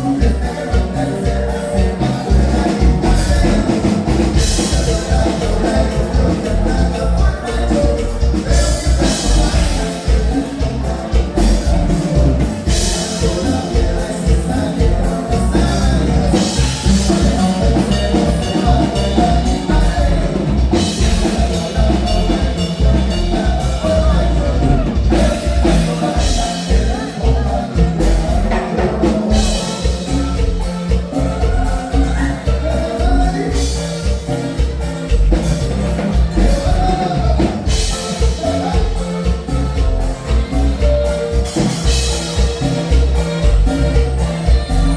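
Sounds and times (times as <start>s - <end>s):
dance music with singing: 0.0s - 44.9s.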